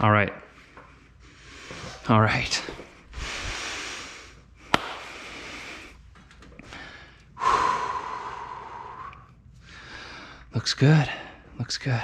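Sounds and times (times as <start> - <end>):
man breathing hard: 3.1 - 10.5.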